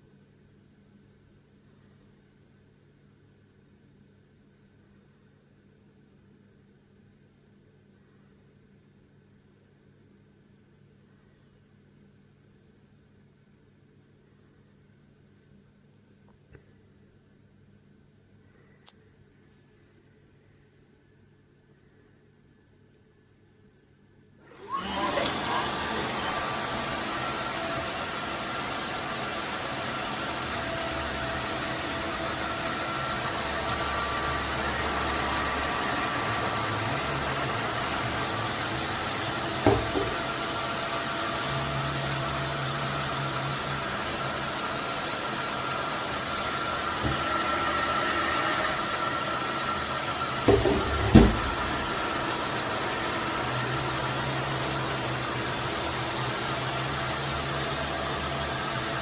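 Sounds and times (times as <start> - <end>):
vacuum mop whirring: 24.4 - 59.0.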